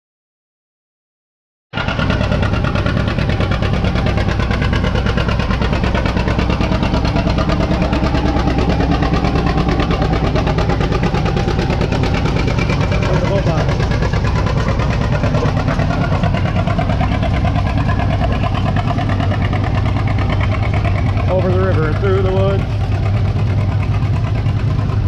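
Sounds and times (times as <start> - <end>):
tractor engine running loud: 1.8 - 25.0.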